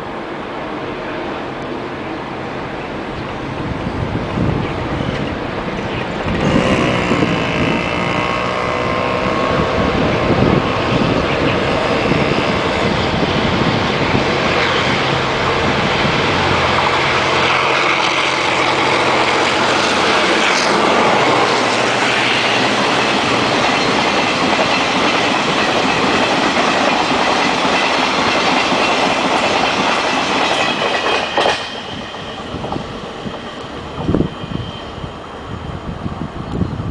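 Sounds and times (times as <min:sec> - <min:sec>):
train wheels clacking over rail joints: 0:14.1 - 0:34.1.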